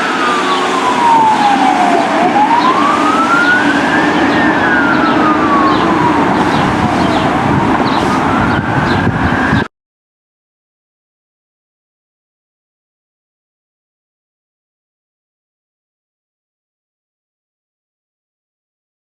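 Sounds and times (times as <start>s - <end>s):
fire engine siren wailing: 0.0s - 9.7s
truck and traffic hum: 0.0s - 9.7s.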